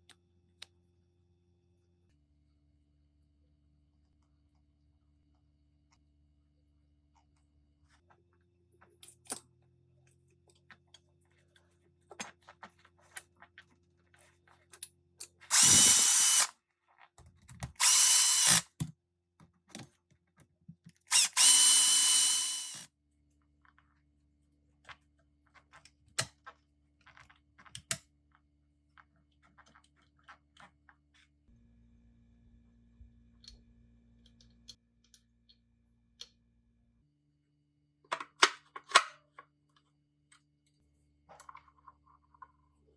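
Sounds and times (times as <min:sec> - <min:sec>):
power tool motor running: 0:15.5 - 0:16.5, 0:17.8 - 0:18.6, 0:21.1 - 0:22.8
small metal parts clicking: 0:15.5 - 0:16.5.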